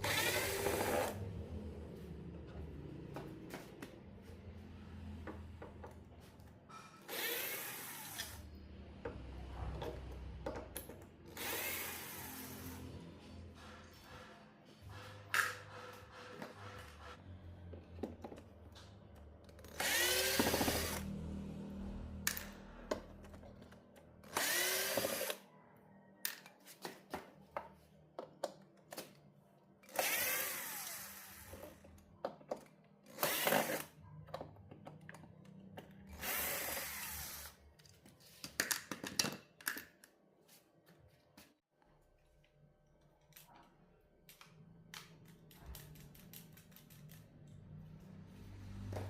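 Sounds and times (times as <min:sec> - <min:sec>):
electric screwdriver running: 0:00.0 - 0:01.2, 0:11.3 - 0:12.8, 0:19.7 - 0:21.1, 0:24.3 - 0:25.4, 0:29.9 - 0:31.6, 0:33.1 - 0:33.9, 0:36.1 - 0:37.6.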